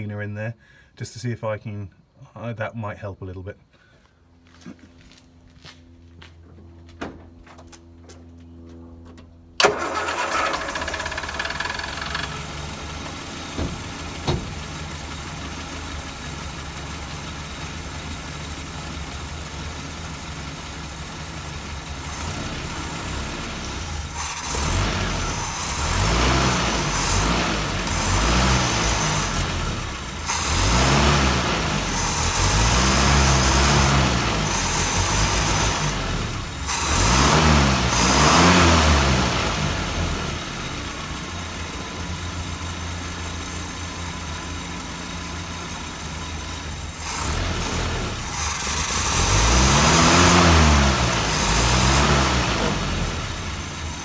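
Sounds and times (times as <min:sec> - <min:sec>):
car engine idling: 0:07.4 - 0:37.0, 0:39.2 - 0:54.0.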